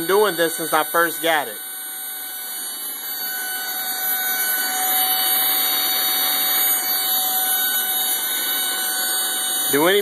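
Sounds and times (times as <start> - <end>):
tv electronic buzz: 0.0 - 10.0.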